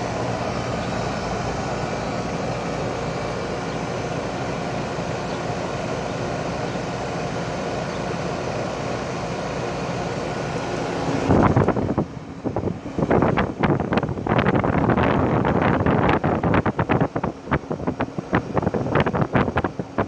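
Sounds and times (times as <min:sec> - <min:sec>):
heat pump drone: 0:00.0 - 0:20.0.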